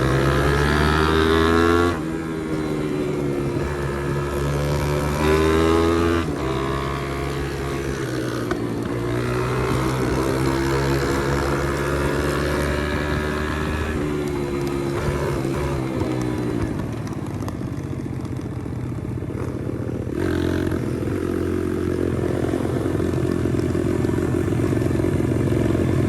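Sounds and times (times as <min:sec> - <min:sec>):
pit bike engine revving: 0:00.0 - 0:17.1.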